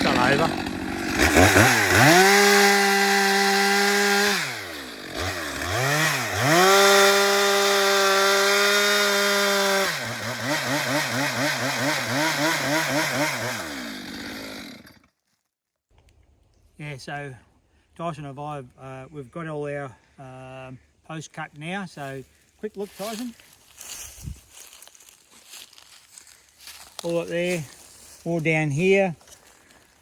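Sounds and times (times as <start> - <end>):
two-stroke chainsaw revving: 0.0 - 15.1.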